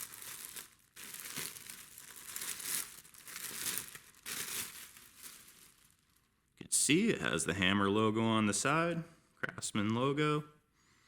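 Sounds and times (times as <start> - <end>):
packaging crinkling: 0.0 - 6.3.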